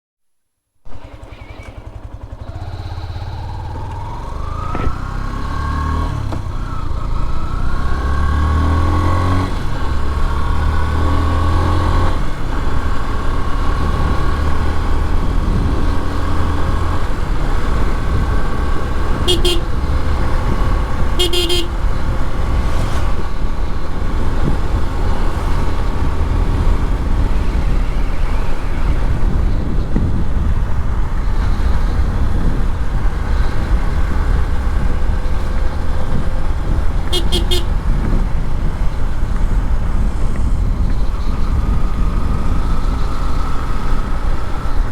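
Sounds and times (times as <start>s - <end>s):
motorcycle engine accelerating: 0.9s - 44.9s
vehicle horn honking: 19.1s - 20.1s, 21.0s - 22.2s, 37.1s - 37.8s.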